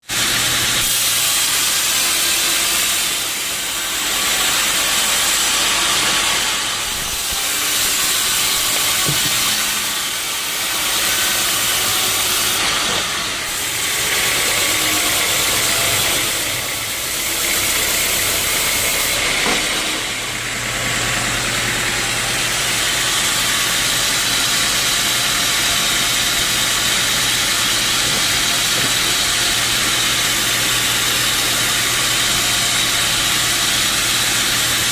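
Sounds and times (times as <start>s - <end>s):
saw blade cutting wood: 0.0s - 34.9s.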